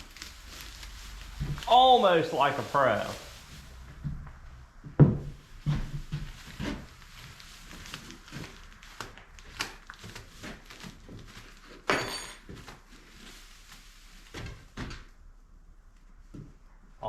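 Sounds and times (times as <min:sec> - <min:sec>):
objects knocking and clunking: 0:04.0 - 0:06.9.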